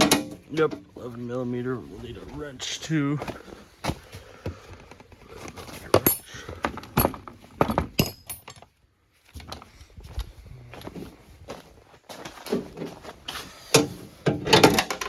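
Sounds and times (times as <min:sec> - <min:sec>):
metal tools clinking: 0:05.9 - 0:08.7, 0:13.8 - 0:15.0.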